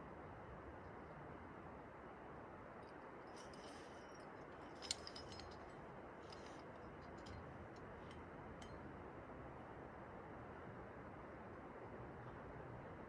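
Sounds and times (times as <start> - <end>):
metallic clicks of climbing hardware: 4.7 - 8.8.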